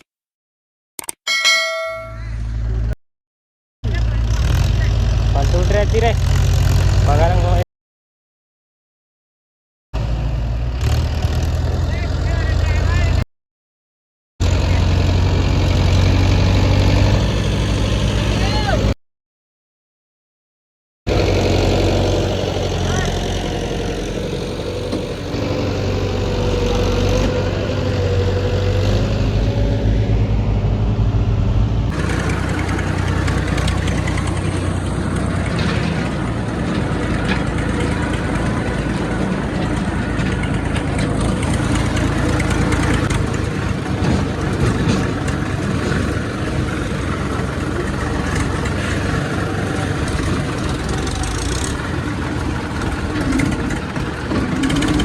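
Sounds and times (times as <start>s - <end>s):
diesel engine running: 14.4s - 19.0s, 21.1s - 55.0s.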